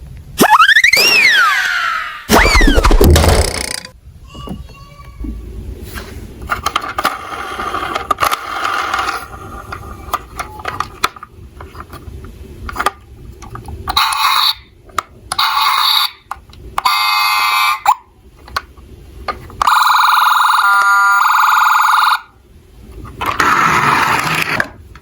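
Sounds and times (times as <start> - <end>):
toy cars rolling and clattering: 6.5 - 12.1.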